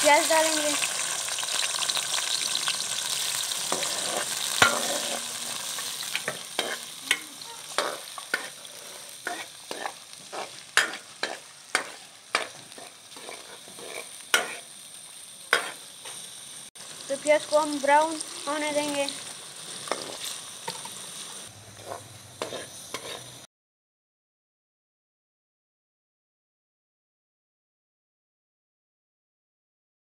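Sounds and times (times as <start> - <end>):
onions sizzling in hot fat: 0.0 - 23.5.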